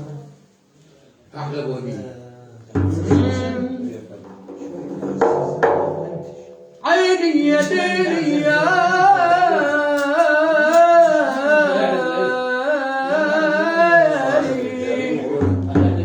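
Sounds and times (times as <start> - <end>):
person singing folk melody: 6.8 - 16.0.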